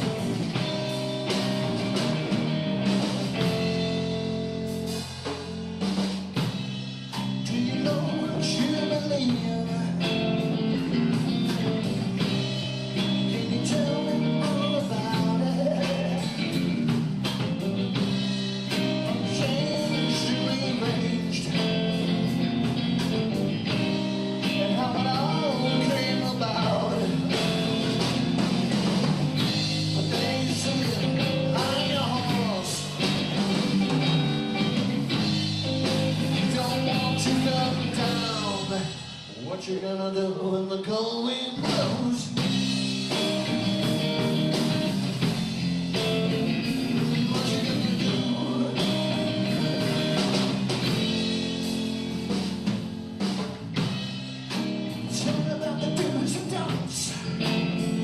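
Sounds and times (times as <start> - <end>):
bass: 0.0 - 58.0
drums: 0.0 - 58.0
rock guitar: 0.0 - 58.0.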